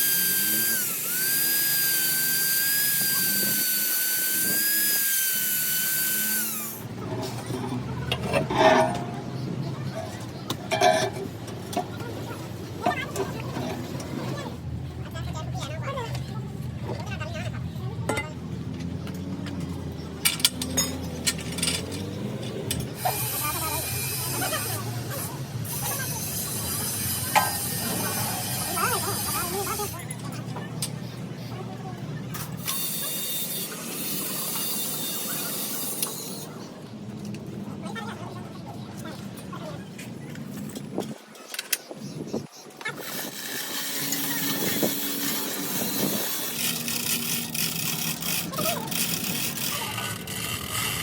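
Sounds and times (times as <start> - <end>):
power tool whining: 0.0 - 7.8, 42.9 - 51.0
metal tools clinking: 7.1 - 9.2, 20.2 - 22.9.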